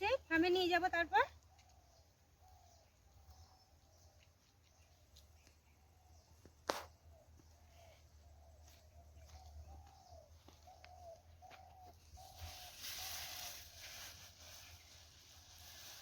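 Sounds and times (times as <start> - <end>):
rustling noise: 11.9 - 16.0.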